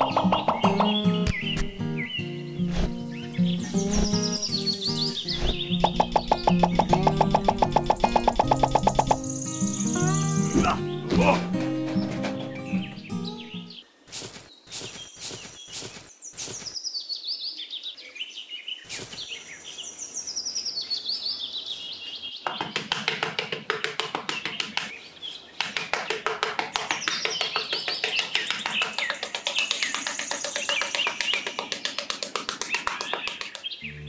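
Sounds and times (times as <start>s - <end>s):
small birds chirping: 0.0s - 34.0s
trowel scraping and digging sand: 14.1s - 16.8s, 18.9s - 20.8s.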